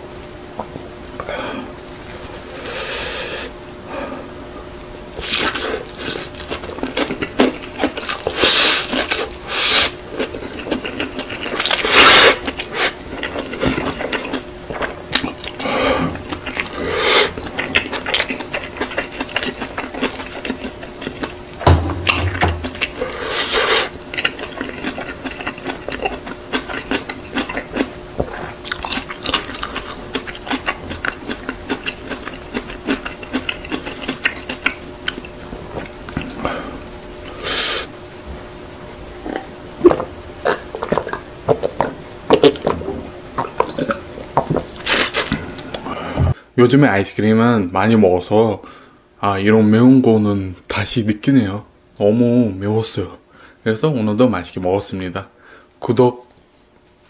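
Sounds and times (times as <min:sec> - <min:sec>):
faint steady hum: 0:00.0 - 0:57.0
person chewing crunchy food: 0:00.6 - 0:03.5, 0:05.1 - 0:37.9, 0:39.2 - 0:46.3.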